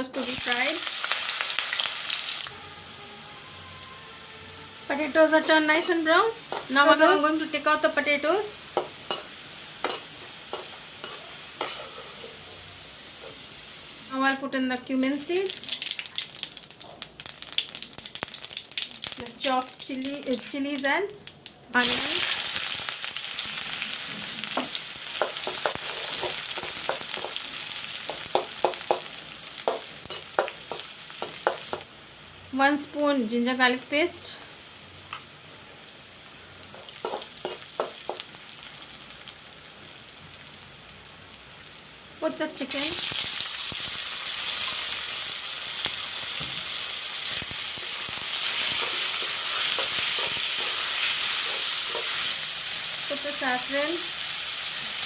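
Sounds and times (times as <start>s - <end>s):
onions sizzling in hot oil: 0.0s - 55.0s
spatula knocking against pan: 28.1s - 31.8s.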